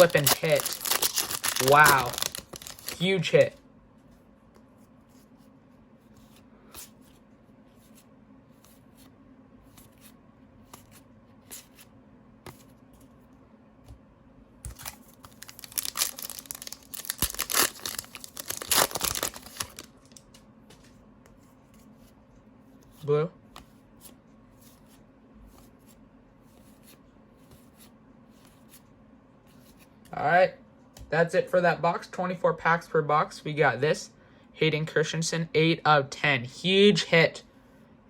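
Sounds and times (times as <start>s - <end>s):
foil wrapper tearing and crinkling: 0.0s - 3.5s, 14.7s - 20.2s.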